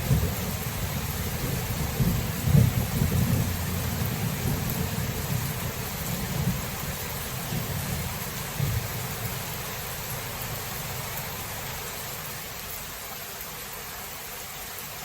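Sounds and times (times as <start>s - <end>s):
low rumble of thunder: 0.0s - 10.6s
steady rain hiss: 0.0s - 15.0s.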